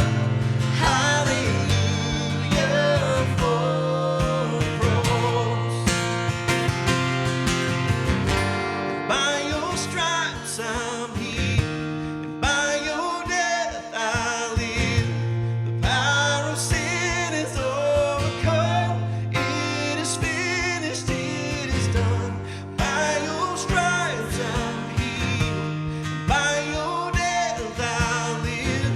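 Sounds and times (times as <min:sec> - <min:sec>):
person singing: 0:00.0 - 0:06.0, 0:08.9 - 0:11.6, 0:19.4 - 0:25.7
strummed acoustic guitar: 0:00.0 - 0:28.9.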